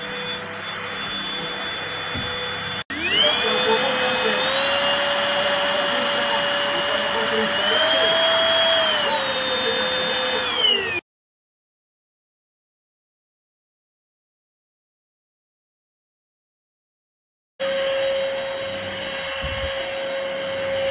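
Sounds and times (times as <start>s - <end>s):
vacuum cleaner motor whining: 0.0s - 11.0s, 17.6s - 20.9s.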